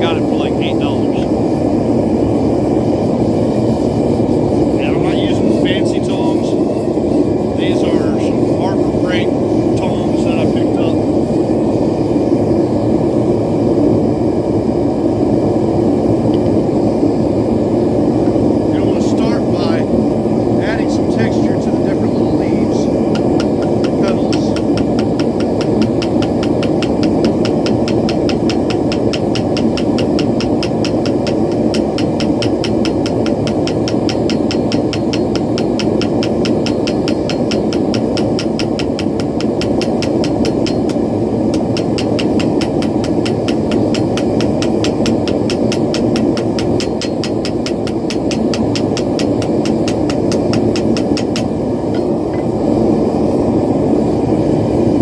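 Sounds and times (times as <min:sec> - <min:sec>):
forge burner roaring: 0:00.0 - 0:55.0
fast even ticking: 0:20.6 - 0:52.2.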